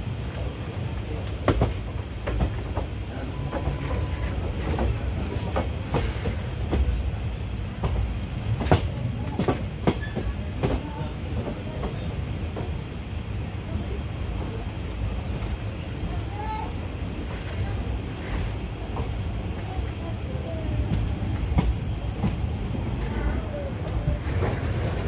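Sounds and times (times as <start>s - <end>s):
train wheels rumbling: 0.0s - 25.0s
wheels clacking over track joints: 1.2s - 7.1s, 7.8s - 12.8s, 20.8s - 25.0s.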